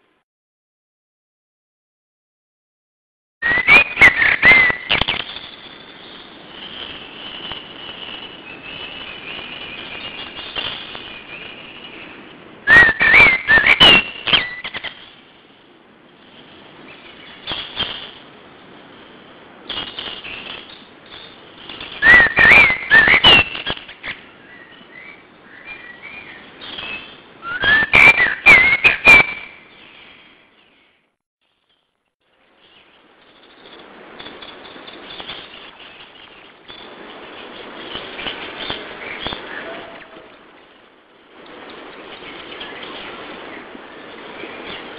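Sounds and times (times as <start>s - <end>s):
songbird singing: 3.4s - 15.6s, 16.2s - 17.9s, 19.9s - 31.1s, 31.8s - 33.9s, 34.5s - 44.9s
soft bird chirps: 20.0s - 21.4s, 22.1s - 27.3s.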